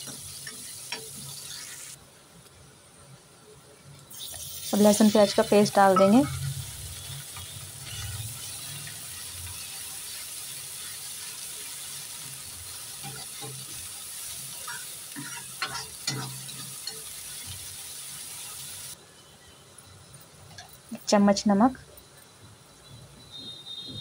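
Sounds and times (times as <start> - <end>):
metal spatula scraping a pan: 0.0 - 2.0, 5.0 - 10.2, 12.2 - 17.7
paste sizzling in hot oil: 0.0 - 2.0, 4.1 - 19.0.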